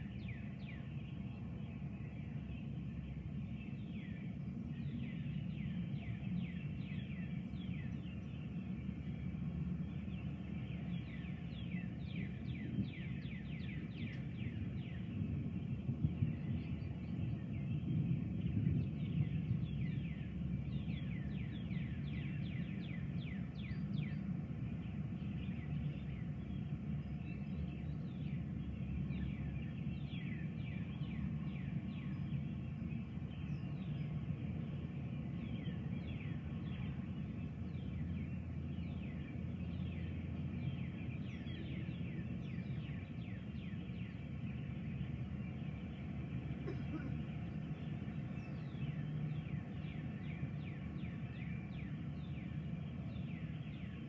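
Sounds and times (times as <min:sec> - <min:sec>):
birds chirping: 0:00.0 - 0:54.0
steady low rumble: 0:00.0 - 0:54.0.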